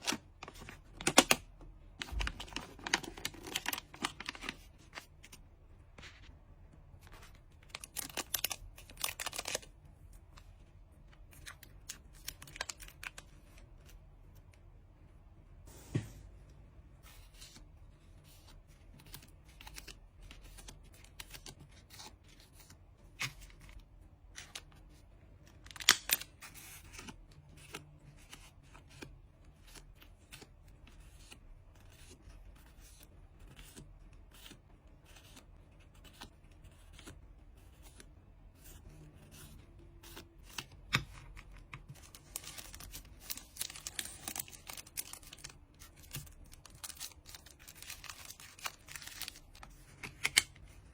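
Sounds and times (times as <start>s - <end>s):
plastic sleeves rustling: 0.0s - 6.3s, 40.1s - 50.9s
paper crinkling and tearing: 2.0s - 5.1s, 41.9s - 50.9s.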